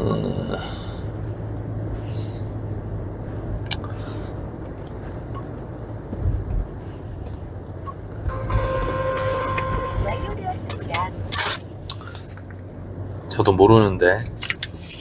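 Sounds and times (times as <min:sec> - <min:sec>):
car engine and road noise: 0:00.0 - 0:15.0
low thumps: 0:04.6 - 0:11.2.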